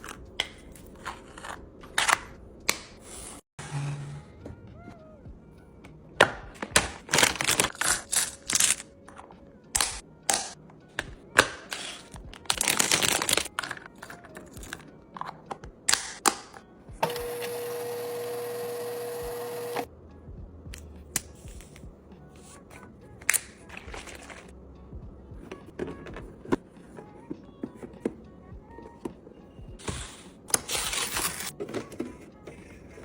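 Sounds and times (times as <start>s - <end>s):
plastic packaging clicking and rustling: 6.6s - 8.9s, 11.7s - 14.8s.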